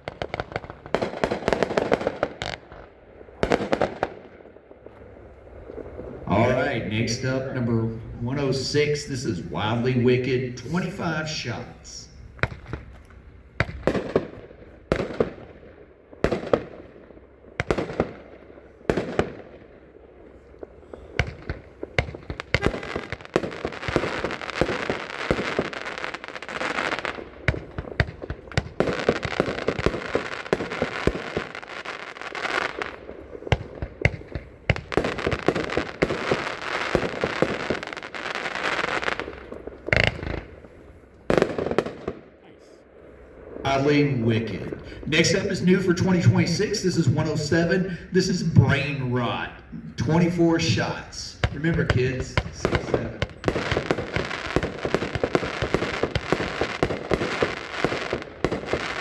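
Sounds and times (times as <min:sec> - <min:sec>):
dense firework crackle: 0:00.0 - 0:49.4, 0:50.1 - 0:59.0
firework shots: 0:00.0 - 0:59.0
loud firework reports: 0:04.8 - 0:12.8, 0:20.3 - 0:40.7, 0:41.3 - 0:59.0.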